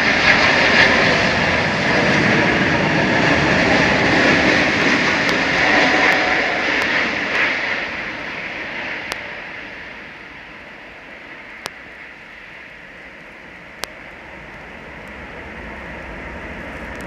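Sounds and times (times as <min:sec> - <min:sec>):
jet airliner engines roaring: 0:00.0 - 0:17.0.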